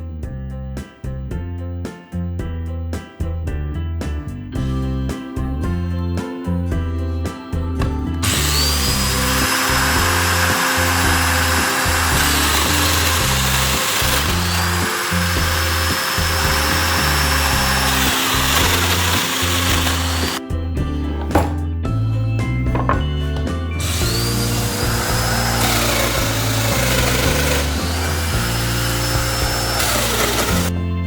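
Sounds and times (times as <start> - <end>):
background music: 0.0 - 31.0
drum sander whining: 7.8 - 21.6, 22.7 - 30.8.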